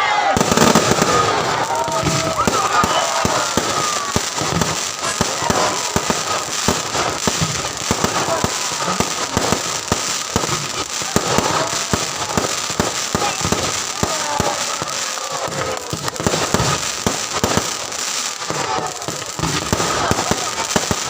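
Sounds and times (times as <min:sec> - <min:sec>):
fireworks bangs and crackles: 0:00.2 - 0:21.0.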